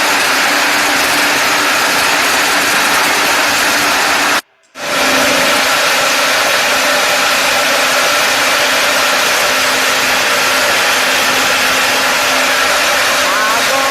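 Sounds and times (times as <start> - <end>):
machine running: 0.0 - 13.9.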